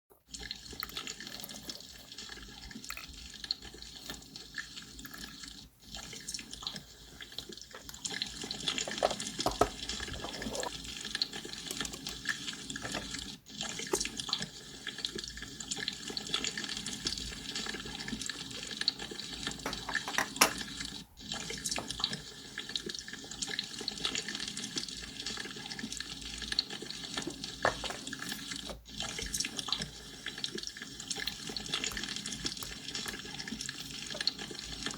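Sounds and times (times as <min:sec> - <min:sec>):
water bubbling: 0:05.9 - 0:13.1.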